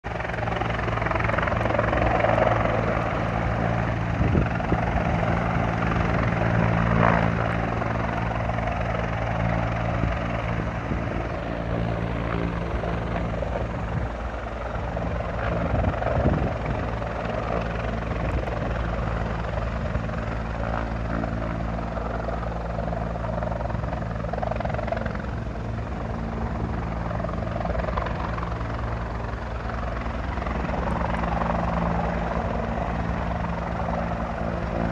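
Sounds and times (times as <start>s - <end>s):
helicopter rotor drone: 0.0s - 34.9s.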